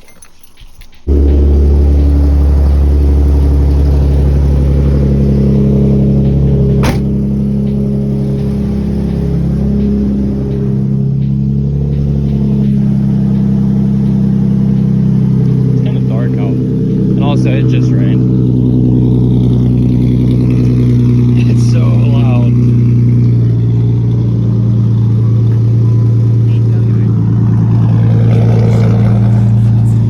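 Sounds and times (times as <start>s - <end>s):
car engine starting and running: 0.9s - 30.0s.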